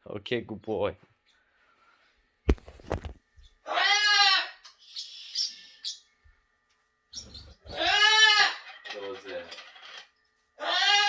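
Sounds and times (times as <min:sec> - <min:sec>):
cockatoo calling: 0:03.6 - 0:06.0, 0:07.1 - 0:08.8, 0:10.6 - 0:11.0.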